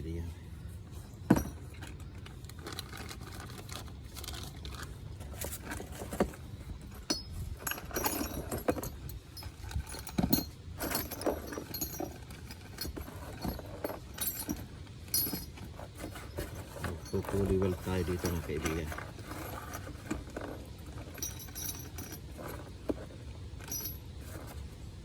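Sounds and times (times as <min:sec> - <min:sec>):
metal fittings and tools clinking: 0:06.0 - 0:22.8, 0:23.6 - 0:24.6.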